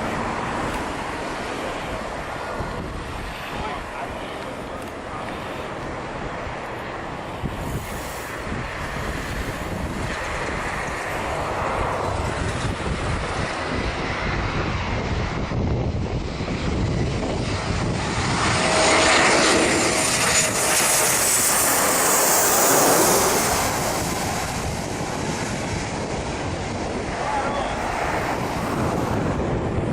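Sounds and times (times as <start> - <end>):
airplane engines in flight: 0.0 - 29.9.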